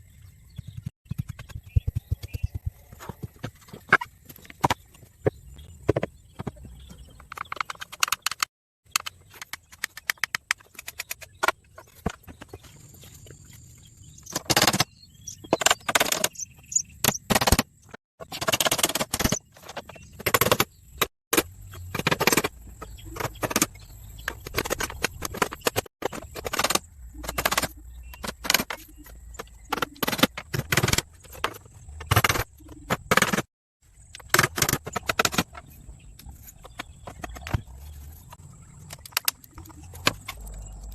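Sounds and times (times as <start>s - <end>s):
sharp knocks clicks and rattles: 5.9s - 12.5s, 14.3s - 16.4s.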